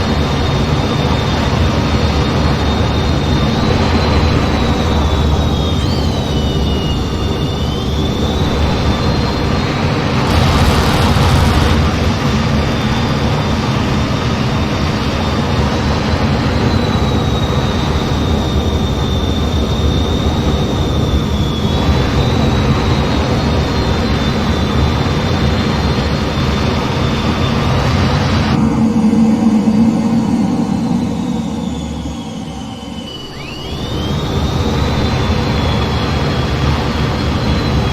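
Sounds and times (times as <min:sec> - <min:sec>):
jet engine and airflow noise: 0:00.0 - 0:37.9
high whine: 0:01.0 - 0:23.4.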